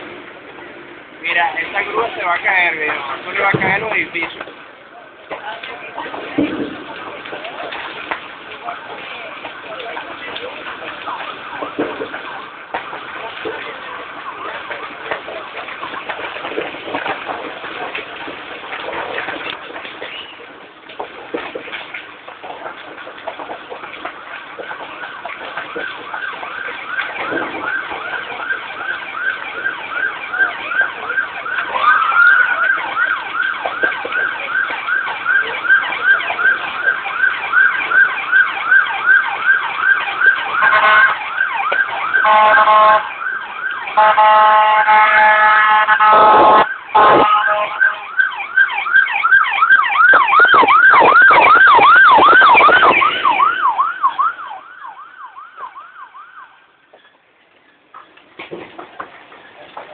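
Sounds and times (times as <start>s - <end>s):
emergency vehicle siren: 5.6s - 57.0s
long horn blasts: 40.6s - 41.2s, 42.2s - 43.1s, 44.0s - 48.0s.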